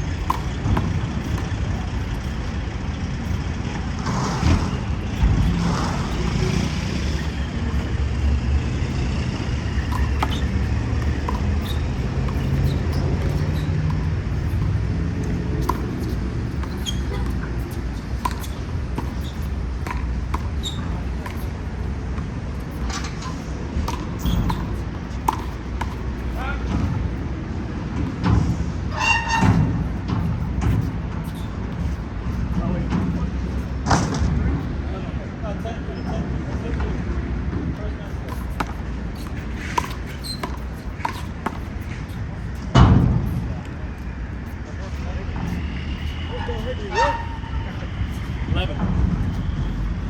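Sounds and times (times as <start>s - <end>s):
heavy vehicle passing: 0.0s - 50.0s
urban traffic rumble: 0.0s - 50.0s
high squeal: 4.1s - 21.8s, 24.2s - 26.4s, 28.9s - 29.9s, 30.7s - 32.0s, 38.3s - 41.6s, 45.4s - 48.4s.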